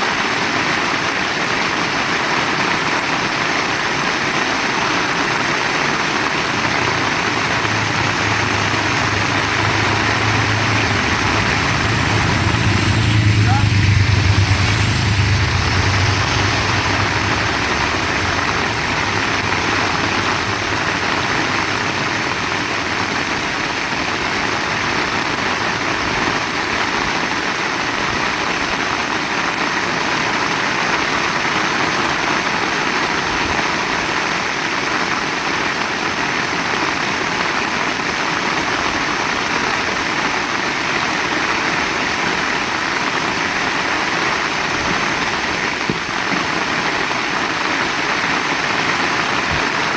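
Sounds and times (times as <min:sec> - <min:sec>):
heavy rain falling: 0:00.0 - 0:49.9
low hum: 0:06.3 - 0:23.9.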